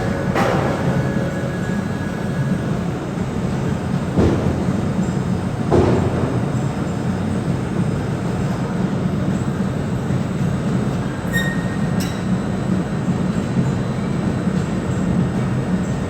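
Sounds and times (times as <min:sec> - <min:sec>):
machinery engine drone: 0:00.0 - 0:06.2.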